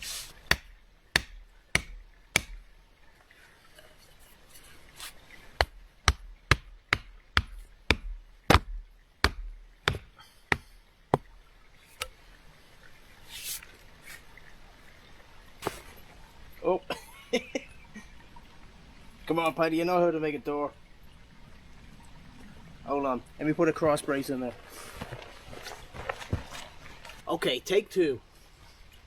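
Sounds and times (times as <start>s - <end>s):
blows striking wood: 0.0s - 2.8s, 5.6s - 11.4s.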